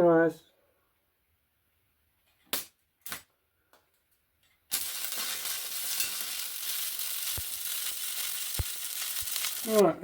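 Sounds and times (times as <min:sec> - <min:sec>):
arc welder crackling sizzle: 0:04.6 - 0:10.0.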